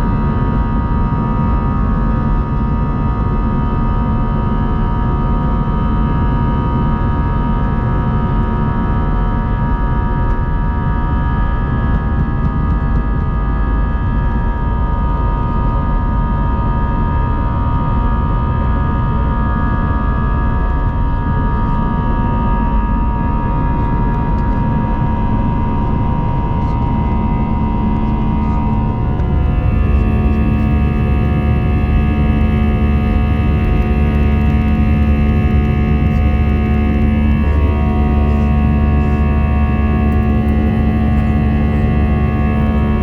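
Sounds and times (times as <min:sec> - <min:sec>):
whining engine tones: 0:27.6 - 0:43.0
jet engines and airflow rushing: 0:27.7 - 0:43.0.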